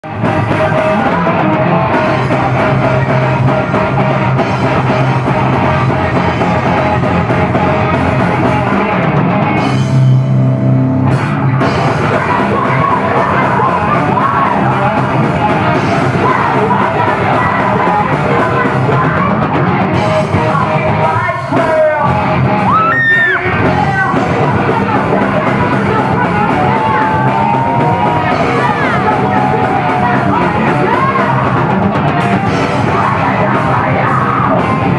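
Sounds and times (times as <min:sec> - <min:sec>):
person singing: 0:00.0 - 0:04.2, 0:11.8 - 0:34.9
bass guitar: 0:00.0 - 0:34.9
distorted guitars: 0:00.0 - 0:34.9
drum kit: 0:00.0 - 0:34.9.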